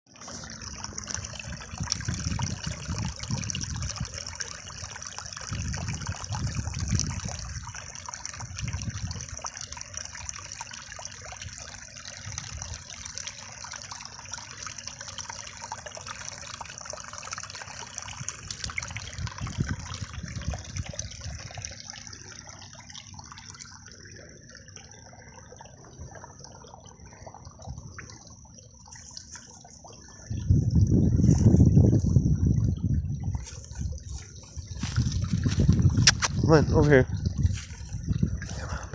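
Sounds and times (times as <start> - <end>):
creek water trickling: 0.1 - 38.9
low rumbles: 30.0 - 38.9.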